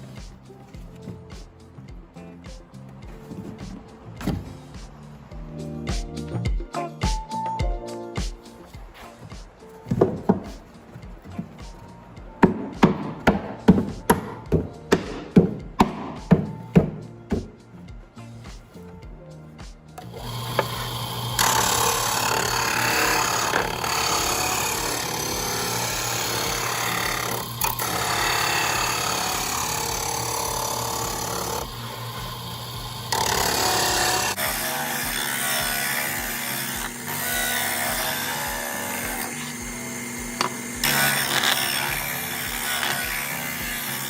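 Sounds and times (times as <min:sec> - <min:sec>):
power tool cutting wood: 0:20.0 - 0:44.0.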